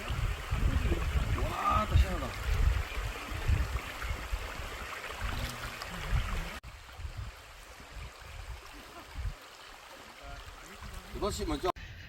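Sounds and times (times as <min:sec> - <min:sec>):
water rushing over rocks: 0:00.0 - 0:11.8.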